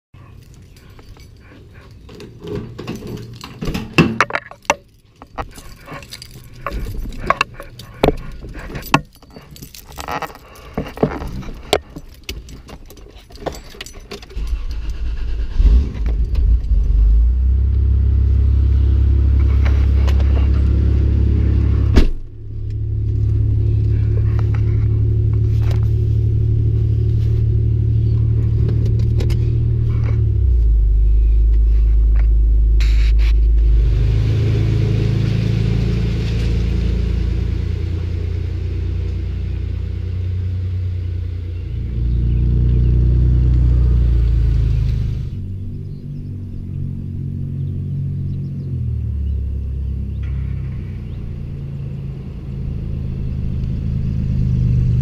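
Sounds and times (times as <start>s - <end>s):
keys jangling: 0.2s - 15.2s
car engine starting and idling: 0.2s - 55.0s.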